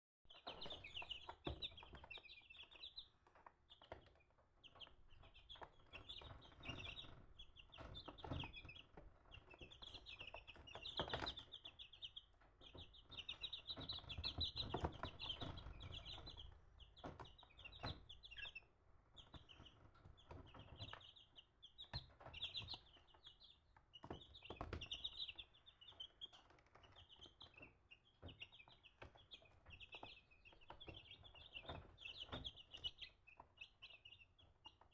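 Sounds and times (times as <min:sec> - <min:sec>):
chickens cheeping and clucking: 0:00.3 - 0:34.9.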